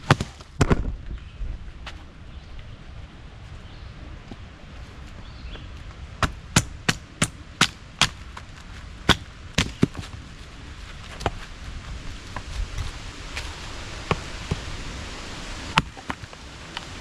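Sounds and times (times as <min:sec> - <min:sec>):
hatchet chopping wood: 0:00.0 - 0:00.9, 0:06.2 - 0:08.4, 0:09.0 - 0:10.2, 0:15.7 - 0:16.2.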